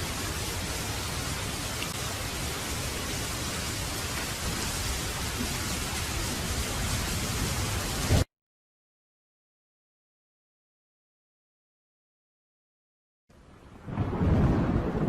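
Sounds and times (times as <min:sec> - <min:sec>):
heavy rain hissing: 0:00.0 - 0:08.3.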